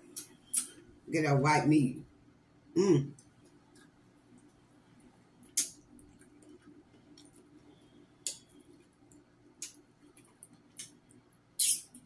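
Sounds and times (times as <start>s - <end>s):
faint low hum: 0.0s - 12.0s
wet mouth clicks and smacks: 9.1s - 11.0s, 11.6s - 12.0s.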